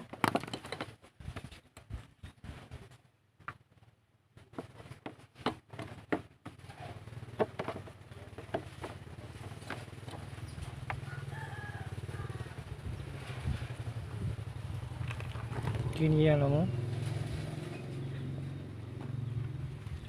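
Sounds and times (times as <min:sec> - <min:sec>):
clicks and knocks of hand work: 0:00.0 - 0:01.9, 0:04.4 - 0:06.7, 0:07.3 - 0:11.0
rooster crowing: 0:10.9 - 0:12.8.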